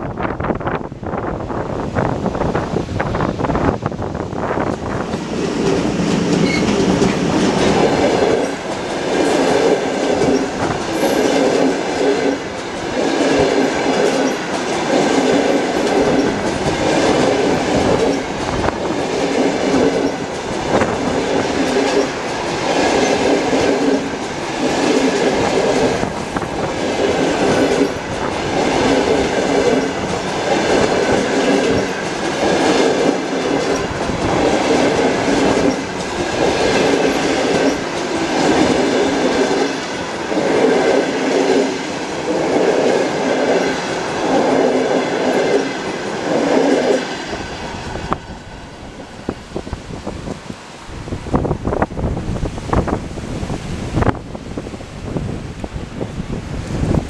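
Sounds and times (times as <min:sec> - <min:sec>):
train wheels clacking: 0:04.6 - 0:49.7.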